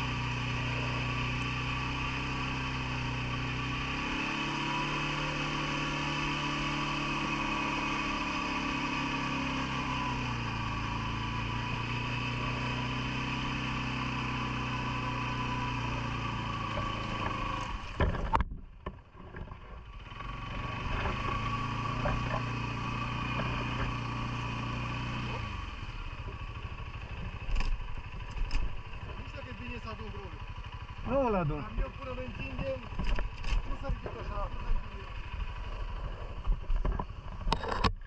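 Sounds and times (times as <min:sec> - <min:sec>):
atv engine running: 0:00.0 - 0:38.0.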